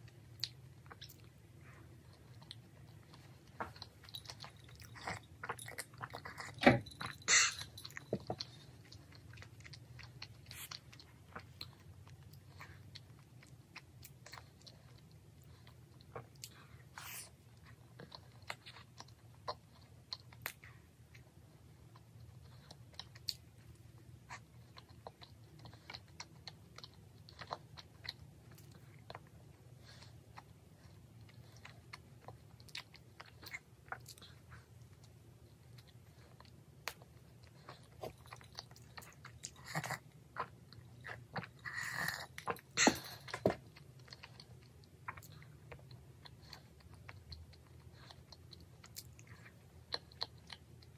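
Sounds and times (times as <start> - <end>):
chewing and biting doughnut: 0.0 - 50.9.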